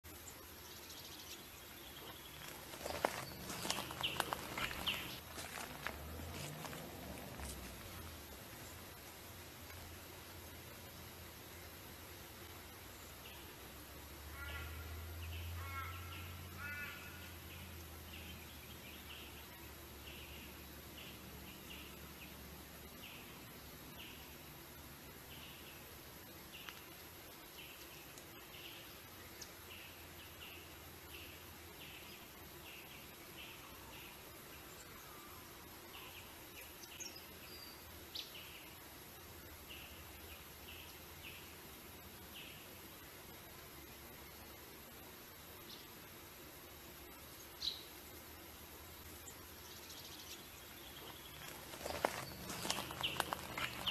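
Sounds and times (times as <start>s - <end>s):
background hiss: 0.0s - 53.9s
small birds chirping: 0.1s - 9.1s, 49.1s - 53.9s
low hum: 2.1s - 11.9s
harsh bird calls: 2.2s - 5.8s, 51.2s - 53.9s.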